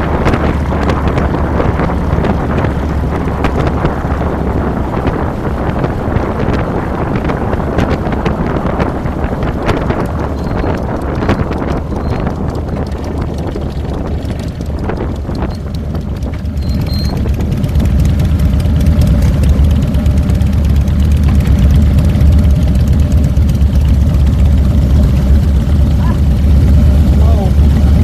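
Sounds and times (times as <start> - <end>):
wind rushing past microphone: 0.0 - 18.0
motorcycle engine running: 0.0 - 28.0.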